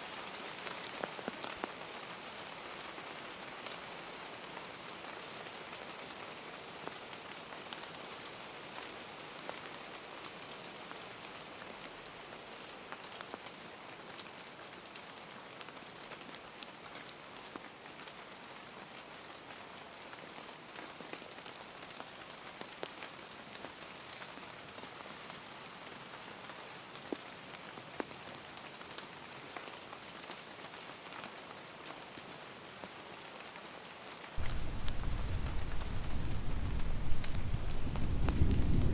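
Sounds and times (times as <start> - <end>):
steady rain hiss: 0.0 - 38.9
raindrop taps: 34.4 - 38.9.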